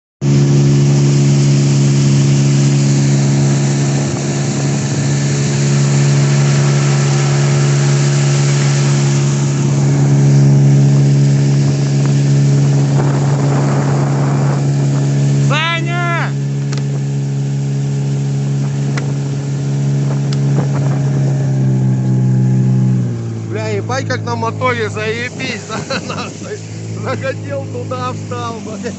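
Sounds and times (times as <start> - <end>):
outboard motor humming: 0.2 - 28.9.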